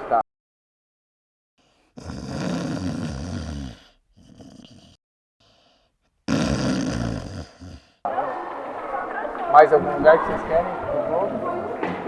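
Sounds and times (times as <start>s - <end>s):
person growling: 1.8s - 5.0s, 6.3s - 8.1s.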